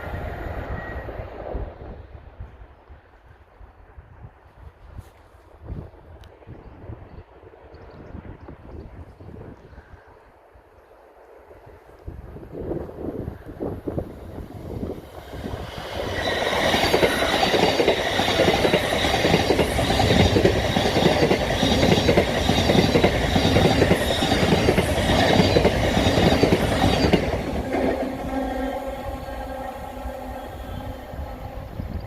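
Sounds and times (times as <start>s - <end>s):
train wheels rattling on rail: 14.0s - 32.0s.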